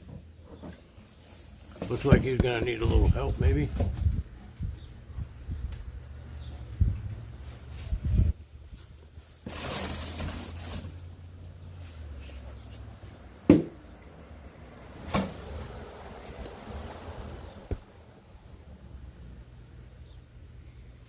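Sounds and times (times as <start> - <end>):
packaging scraping rustle: 9.4 - 11.1.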